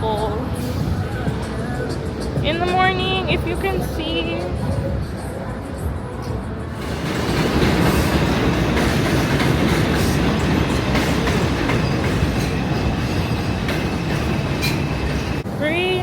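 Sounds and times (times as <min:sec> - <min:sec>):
subway train rumbling on rails: 0:00.0 - 0:16.0.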